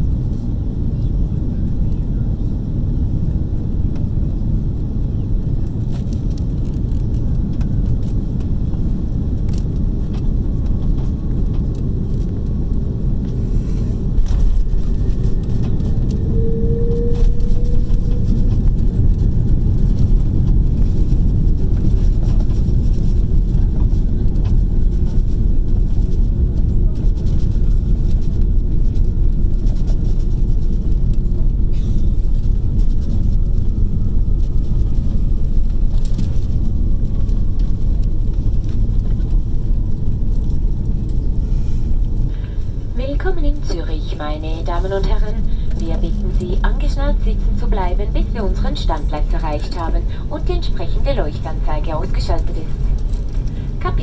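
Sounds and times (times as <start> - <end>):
airplane cabin rumble: 0.0 - 54.0
brief tone: 14.8 - 18.9.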